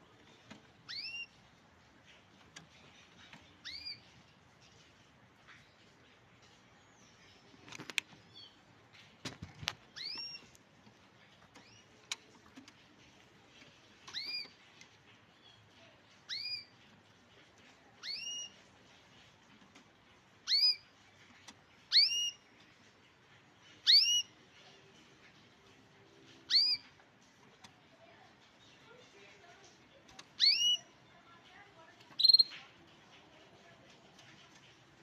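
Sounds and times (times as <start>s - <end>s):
canary call notes: 0.9s - 1.3s, 21.9s - 22.4s, 23.8s - 24.3s, 26.4s - 26.9s, 30.4s - 30.9s, 32.2s - 32.6s.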